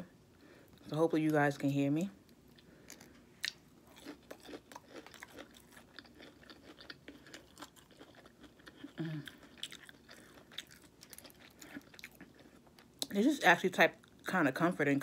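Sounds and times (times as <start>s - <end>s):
chewing crunchy food: 2.3s - 13.2s.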